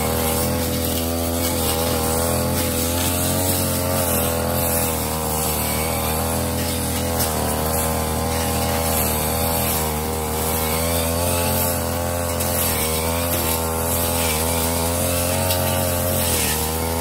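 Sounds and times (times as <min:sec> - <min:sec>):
brush cutter running: 0:00.0 - 0:17.0.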